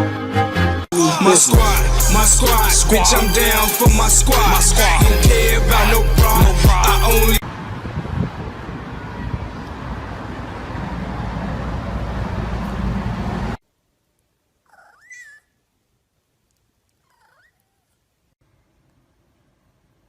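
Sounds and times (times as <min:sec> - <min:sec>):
loud rough noise: 0:01.0 - 0:07.4
cat meowing: 0:17.1 - 0:17.9.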